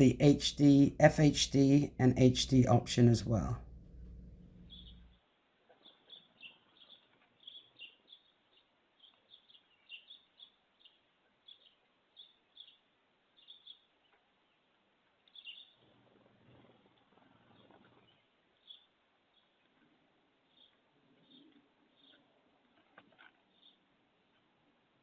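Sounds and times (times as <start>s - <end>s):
small birds chirping: 4.6s - 22.5s, 23.4s - 24.5s.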